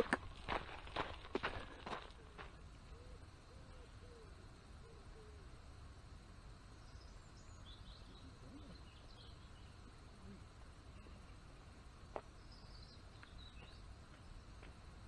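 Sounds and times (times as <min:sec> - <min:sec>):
small birds chirping: 0:06.7 - 0:14.8.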